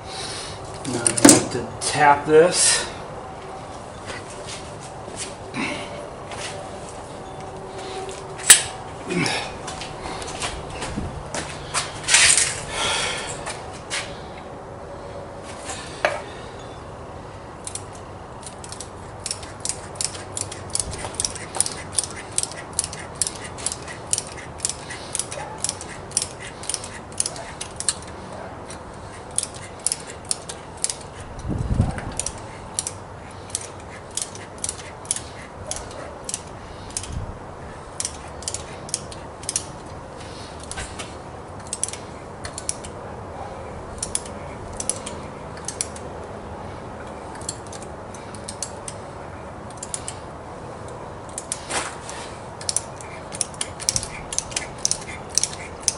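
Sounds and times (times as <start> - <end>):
hand ratchet clicking: 17.6 - 37.2, 37.9 - 40.0, 40.6 - 43.0, 44.0 - 46.1, 47.0 - 49.0, 49.7 - 50.2, 50.9 - 55.9.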